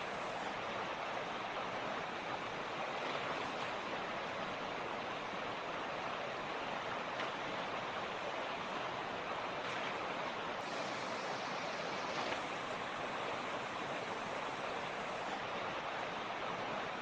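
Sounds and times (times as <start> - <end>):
mountain creek rushing: 0.0 - 17.0.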